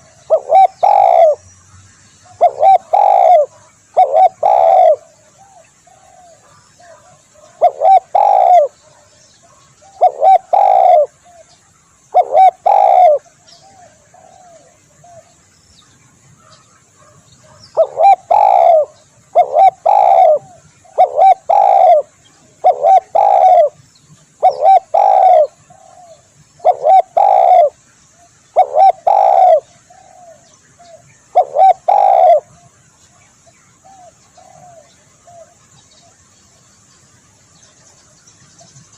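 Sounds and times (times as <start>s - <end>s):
dove cooing: 0.0s - 1.4s, 2.3s - 11.5s, 12.1s - 15.3s, 16.5s - 23.8s, 24.4s - 27.8s, 28.5s - 32.7s, 33.8s - 35.7s.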